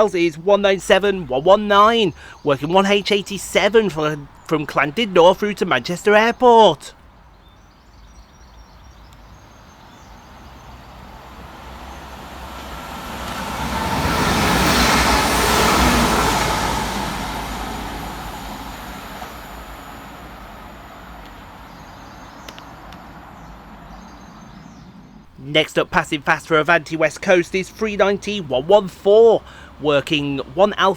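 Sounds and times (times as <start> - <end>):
train passing fast: 0.0 - 6.9, 10.2 - 30.9.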